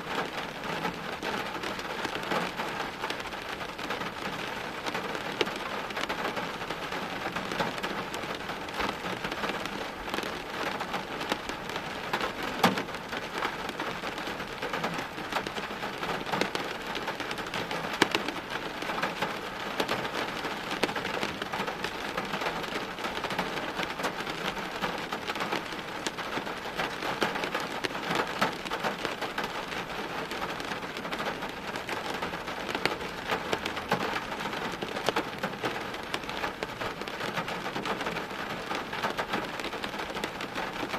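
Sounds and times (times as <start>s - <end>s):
rain on hard surfaces: 0.0s - 40.9s.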